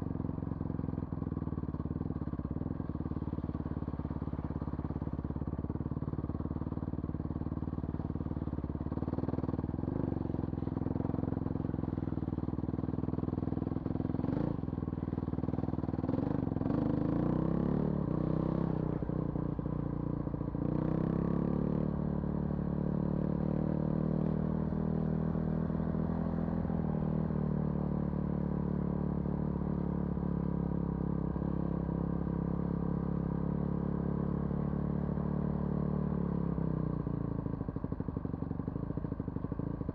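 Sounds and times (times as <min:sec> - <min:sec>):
vehicle engine running: 0:00.0 - 0:21.2.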